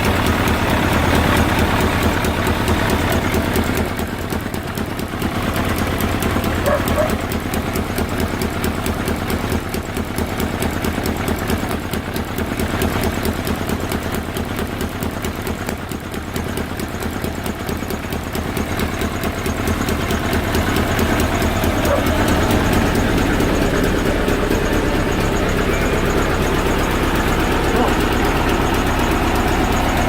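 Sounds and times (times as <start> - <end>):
fast mechanical ticking: 0.0 - 30.0
motorcycle engine idling: 0.0 - 30.0.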